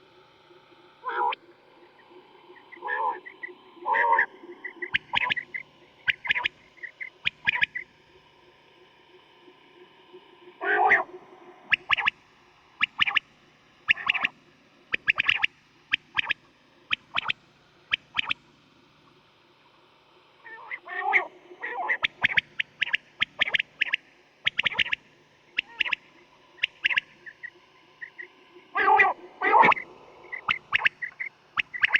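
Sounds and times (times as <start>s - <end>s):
quail calling: 1.0s - 1.4s, 2.6s - 7.8s, 10.6s - 11.1s, 11.7s - 12.1s, 13.9s - 14.3s, 15.0s - 17.4s, 20.5s - 25.0s, 25.6s - 31.9s.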